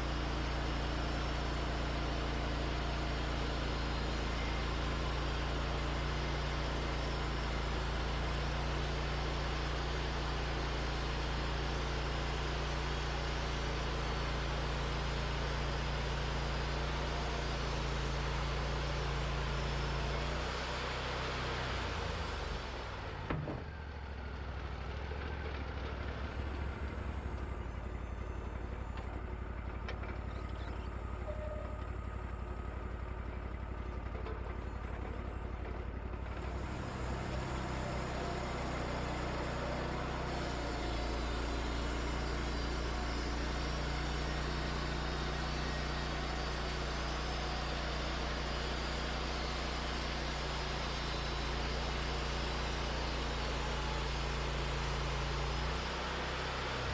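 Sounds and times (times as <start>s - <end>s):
sawmill engine and band saw: 0.0s - 56.9s.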